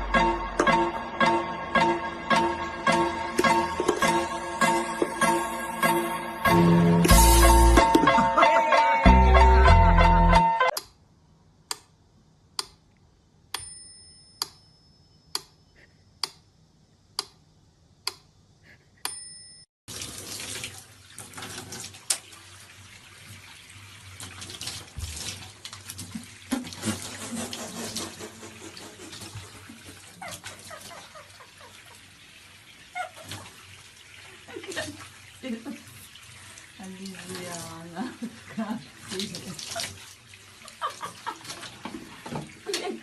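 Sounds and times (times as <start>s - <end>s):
tap water running into sink: 3.3s - 5.6s, 19.9s - 43.0s.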